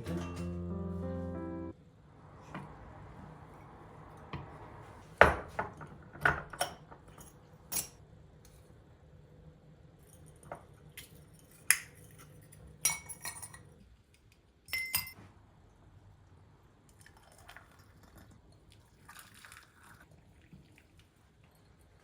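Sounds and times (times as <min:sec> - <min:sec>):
kitchenware clinking: 0:00.0 - 0:00.8, 0:11.7 - 0:13.7, 0:14.7 - 0:15.2.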